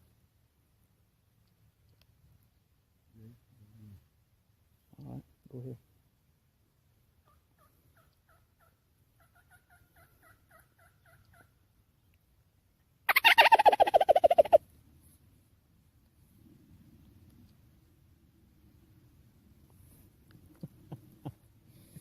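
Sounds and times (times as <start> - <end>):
rattling turkey gobble: 7.2 - 11.6, 13.1 - 14.6
soft turkey yelps: 7.2 - 11.6, 13.1 - 14.6.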